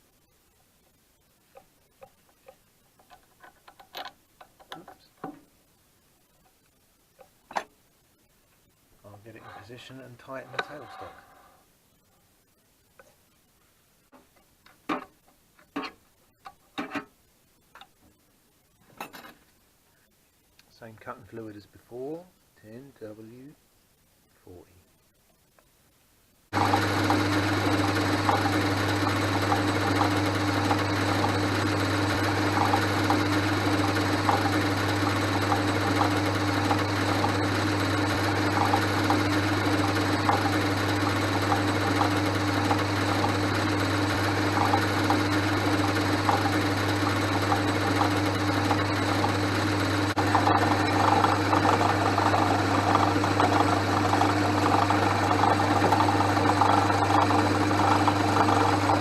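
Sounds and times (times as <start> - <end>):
metal lathe humming: 26.6 - 59.0.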